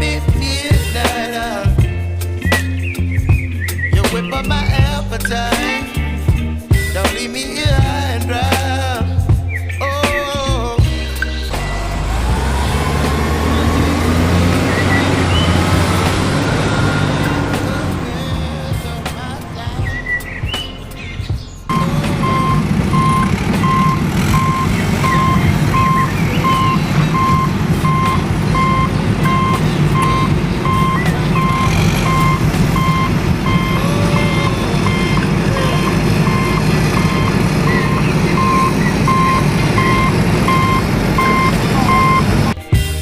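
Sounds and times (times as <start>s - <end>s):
engine rumble: 0.0s - 42.7s
truck reversing alarm beeping: 11.2s - 42.6s.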